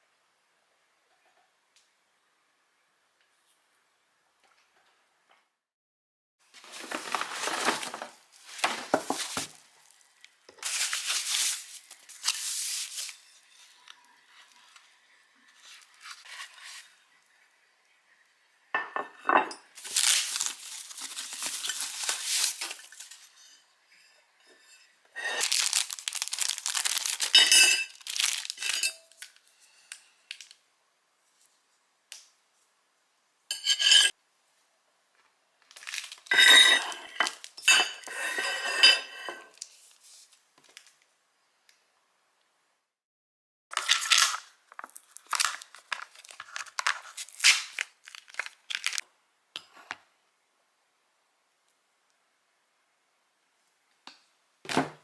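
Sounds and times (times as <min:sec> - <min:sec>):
dishes and utensils rustling: 0:06.5 - 0:17.0, 0:18.8 - 0:30.5, 0:33.5 - 0:34.2, 0:35.8 - 0:40.3
dishes clinking: 0:18.8 - 0:19.8, 0:27.3 - 0:28.0, 0:36.3 - 0:39.5.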